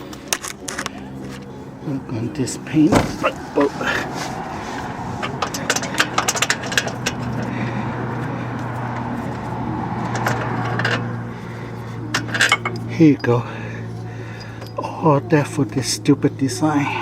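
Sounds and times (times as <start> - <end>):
metallic clicks and rattles: 5.2 - 7.5.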